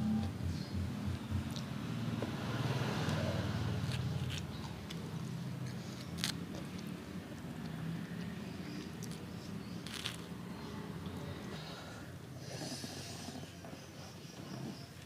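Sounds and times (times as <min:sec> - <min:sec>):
person chewing food: 0:05.6 - 0:10.3.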